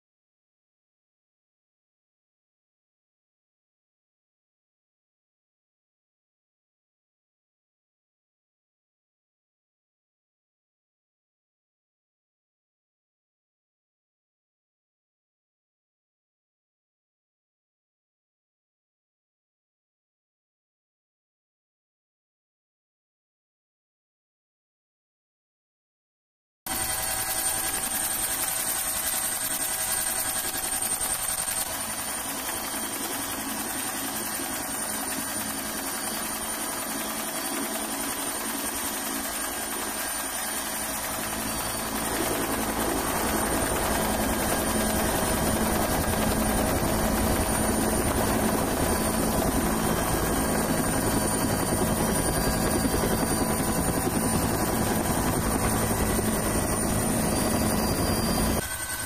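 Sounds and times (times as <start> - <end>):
helicopter in flight: 26.7 - 59.0.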